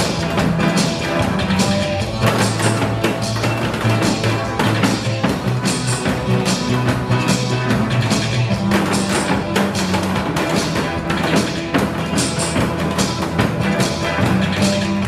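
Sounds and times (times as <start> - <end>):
accompanying music: 0.0 - 15.0
hourglass drum struck in rhythm: 0.0 - 15.0.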